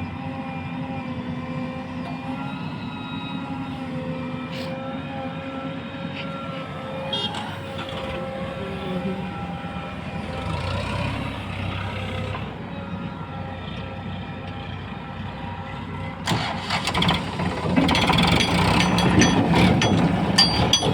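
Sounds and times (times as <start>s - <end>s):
heavy diesel engine running: 5.0s - 20.9s
short metallic clatter: 17.6s - 20.9s.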